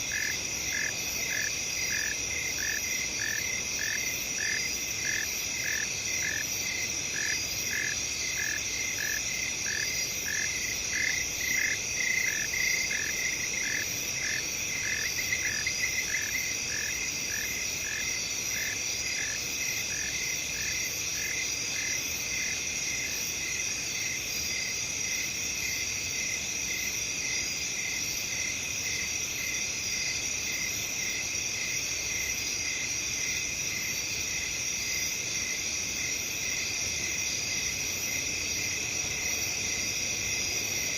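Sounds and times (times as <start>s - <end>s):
crickets and insects trilling: 0.0s - 40.9s.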